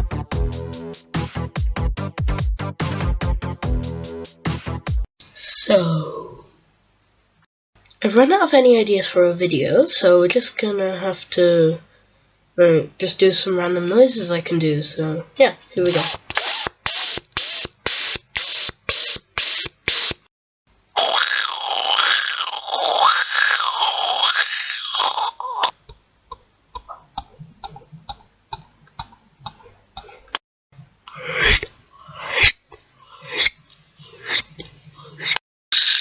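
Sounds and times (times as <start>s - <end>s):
mouth clicks: 15.8s - 20.2s, 21.0s - 30.2s
hissing mouth puffs: 15.9s - 20.2s, 31.1s - 35.4s.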